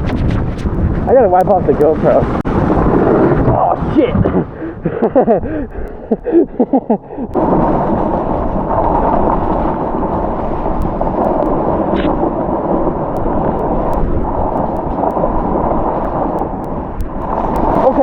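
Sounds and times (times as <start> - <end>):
wind buffeting microphone: 0.0 - 18.0
person speaking: 1.1 - 2.3, 17.8 - 18.0.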